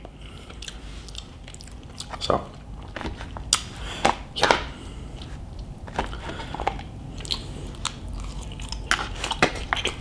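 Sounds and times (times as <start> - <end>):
wet crunchy chewing: 5.2 - 10.0.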